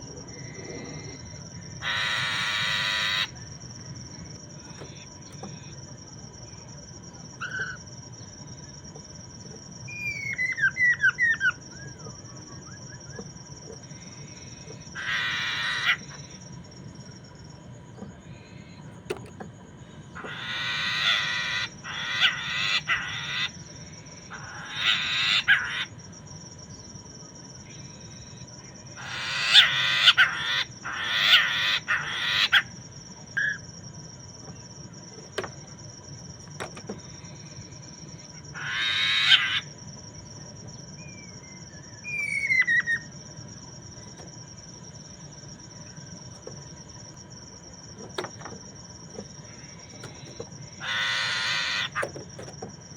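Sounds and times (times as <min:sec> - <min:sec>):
harsh raspy bird calls: 0:00.4 - 0:03.4, 0:14.5 - 0:16.4, 0:20.2 - 0:26.0, 0:29.0 - 0:32.8, 0:38.5 - 0:39.7, 0:49.5 - 0:52.2.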